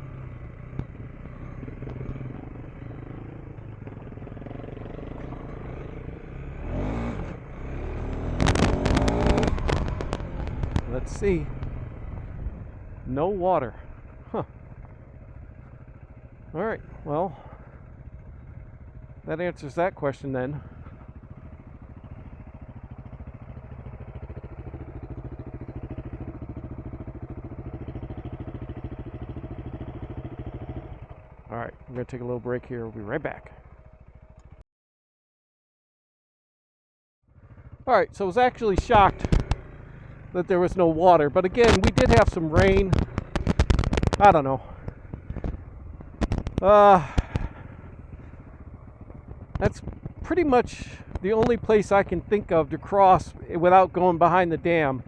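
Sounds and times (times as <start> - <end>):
motorcycle engine running: 0.0 - 34.6, 37.3 - 55.0
loud rattling clatter: 38.8 - 40.3, 41.6 - 51.6.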